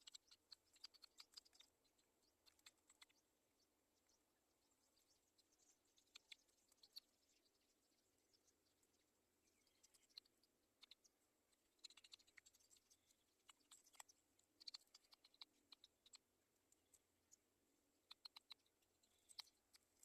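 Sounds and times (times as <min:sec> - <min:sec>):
faint sharp clicks: 0:00.0 - 0:03.2, 0:05.3 - 0:07.1, 0:09.8 - 0:17.4, 0:18.0 - 0:20.0.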